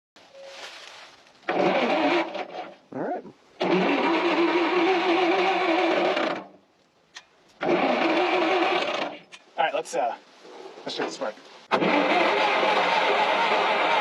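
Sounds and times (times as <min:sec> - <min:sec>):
starter cranking engine: 0:01.4 - 0:02.8, 0:03.6 - 0:06.6, 0:07.6 - 0:09.4, 0:11.7 - 0:14.0.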